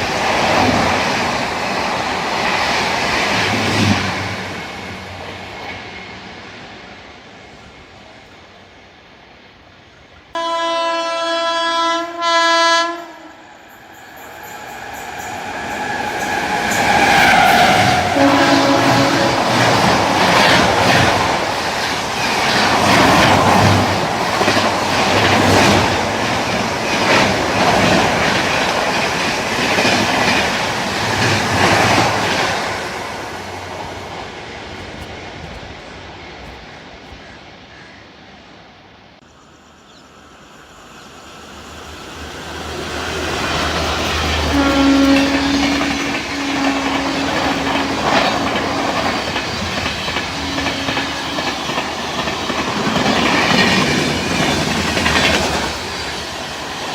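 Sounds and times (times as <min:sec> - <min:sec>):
train horn blast: 0:10.4 - 0:13.6, 0:15.7 - 0:19.8, 0:44.4 - 0:49.2, 0:50.3 - 0:51.6
train wheels clickety-clack: 0:14.0 - 0:32.8, 0:43.1 - 0:56.9.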